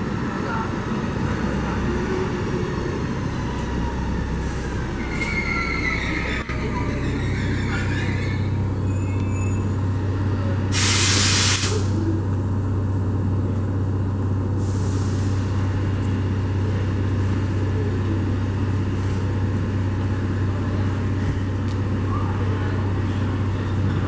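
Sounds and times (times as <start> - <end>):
train humming: 0.0 - 24.0
air brakes hissing: 10.7 - 12.0, 14.6 - 15.5.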